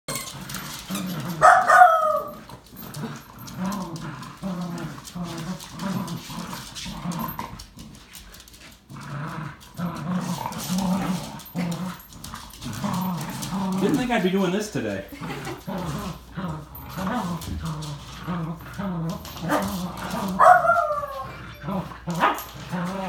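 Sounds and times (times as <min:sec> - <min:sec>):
dogs growling in play: 0:00.1 - 0:23.0
dog yelp: 0:01.4 - 0:02.4, 0:20.4 - 0:22.5.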